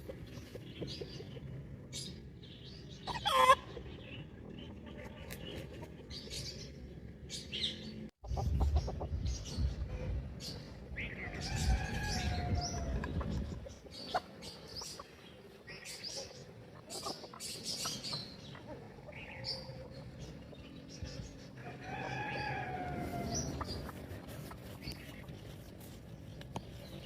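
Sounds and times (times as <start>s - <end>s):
chickens clucking: 0.0s - 2.3s, 2.9s - 6.8s, 8.2s - 27.0s
rooster crowing: 11.4s - 13.0s, 21.6s - 23.7s.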